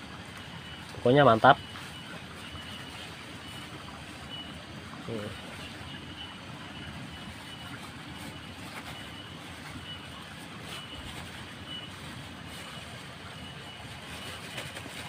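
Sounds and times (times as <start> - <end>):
faint high-pitched chirp: 0.3 - 15.0.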